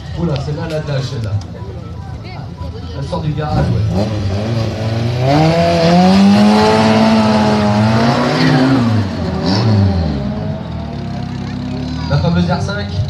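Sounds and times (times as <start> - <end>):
rally car engine revving: 3.3 - 13.0.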